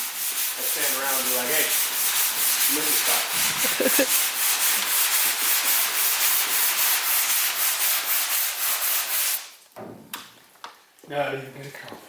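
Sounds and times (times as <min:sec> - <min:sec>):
sandpaper rubbing on metal: 0:00.0 - 0:09.4.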